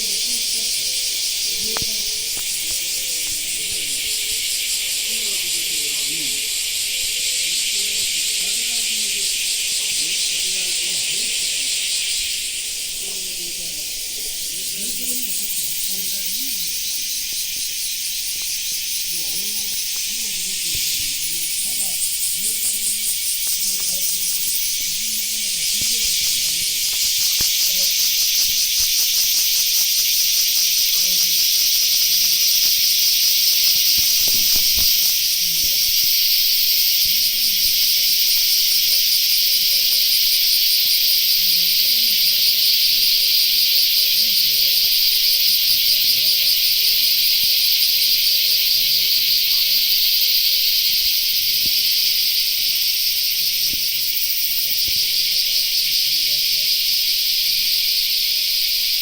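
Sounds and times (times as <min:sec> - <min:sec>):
high-pitched pulsing hissing buzz: 0:00.0 - 0:38.8
faint low voices: 0:00.0 - 0:58.6.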